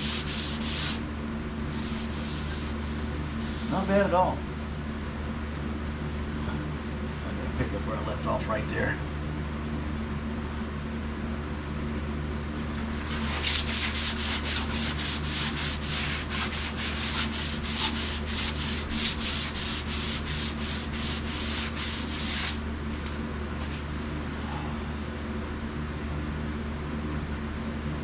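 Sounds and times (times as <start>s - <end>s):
sandpaper scraping paint: 0.0s - 1.0s, 1.6s - 4.0s, 13.0s - 22.6s
steady low hum: 0.0s - 28.0s.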